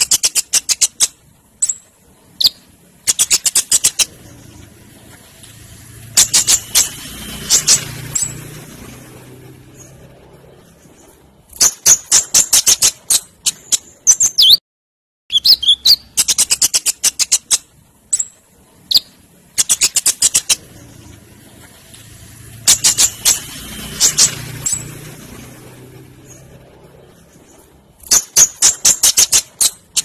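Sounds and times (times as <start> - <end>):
sunbird singing: 10.8 - 14.6, 15.3 - 21.0.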